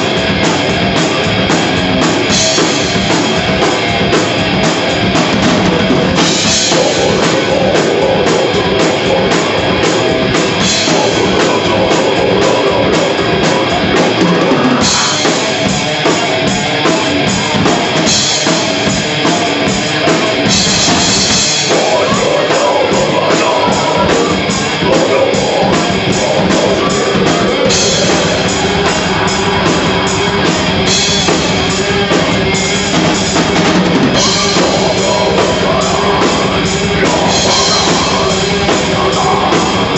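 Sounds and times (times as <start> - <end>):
metal band playing live: 0.0 - 39.9.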